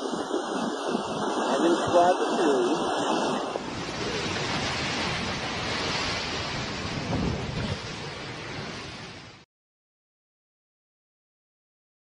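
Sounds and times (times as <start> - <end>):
wind and water buffeting microphone: 0.0 - 9.4.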